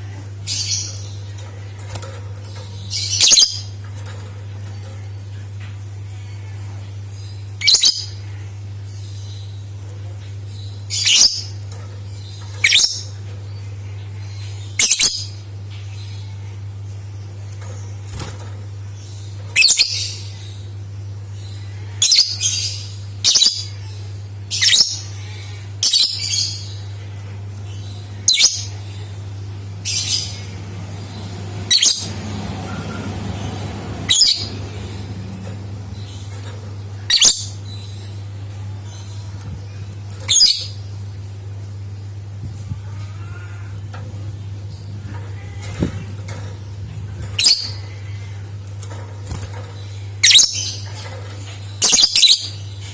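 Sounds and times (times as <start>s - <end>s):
steady low hum: 0.0s - 52.9s
bird chirping shrilly: 34.1s - 35.0s, 37.0s - 37.6s.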